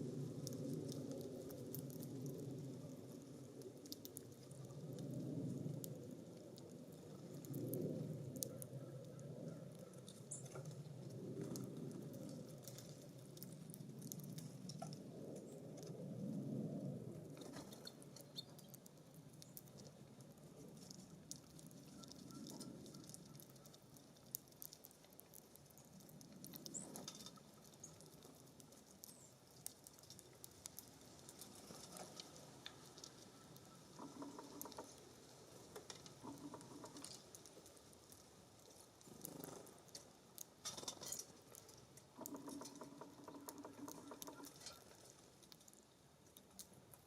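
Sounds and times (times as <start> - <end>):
wind rumble on microphone: 0.0 - 18.2
birds pecking at a feeder: 0.1 - 16.3, 17.0 - 47.0.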